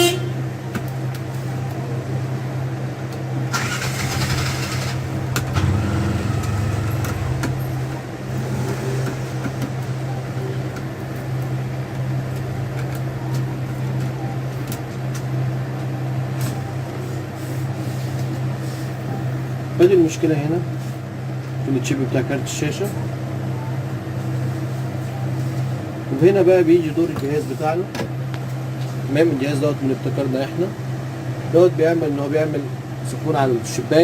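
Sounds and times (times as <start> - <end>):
low engine hum: 4.1 - 17.2.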